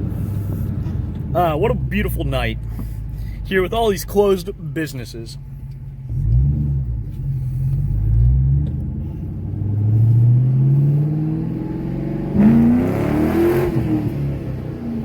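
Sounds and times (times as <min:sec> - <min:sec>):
car engine accelerating: 0:05.4 - 0:15.0.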